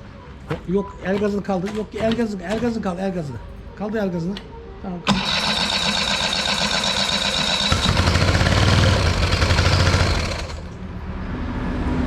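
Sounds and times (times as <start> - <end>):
outboard motor cranking: 5.1 - 10.8.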